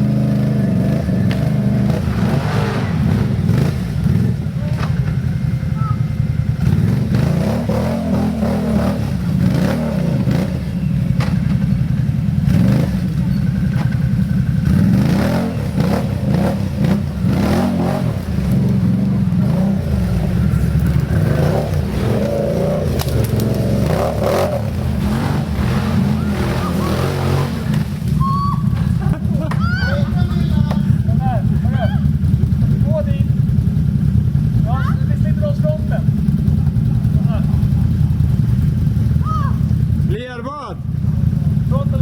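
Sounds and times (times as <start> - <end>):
atv engine revving: 0.0 - 42.0
knocks and clatter: 13.3 - 14.2.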